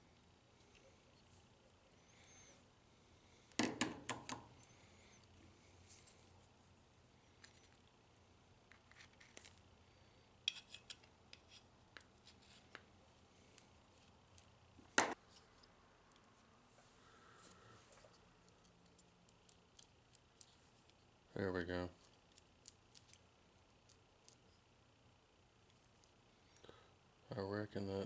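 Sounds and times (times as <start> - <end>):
gears and small parts clicking: 18.1 - 21.1, 22.0 - 24.5.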